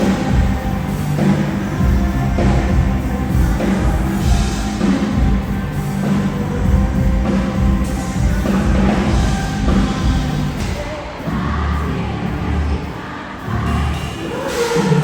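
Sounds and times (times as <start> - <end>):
live rock band playing: 0.0 - 11.0
pounding drum kit: 0.0 - 12.5
heavy bass: 0.0 - 15.0.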